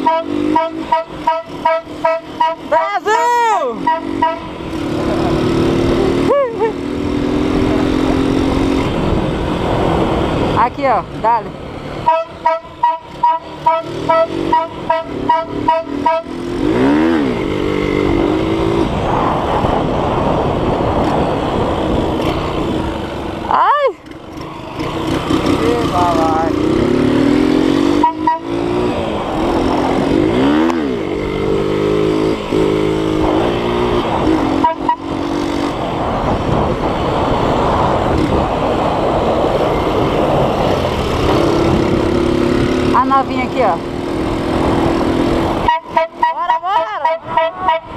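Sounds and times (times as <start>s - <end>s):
two-tone novelty car horn toots: 0.0s - 2.9s, 3.8s - 4.6s, 12.0s - 16.4s, 27.9s - 28.6s, 34.6s - 35.2s, 45.6s - 47.9s
low horn tone: 0.0s - 3.0s, 3.8s - 4.8s, 12.0s - 17.4s, 27.6s - 28.9s, 34.3s - 35.3s, 45.6s - 47.9s
engine and road noise: 0.0s - 47.9s
street traffic noise: 0.0s - 47.9s.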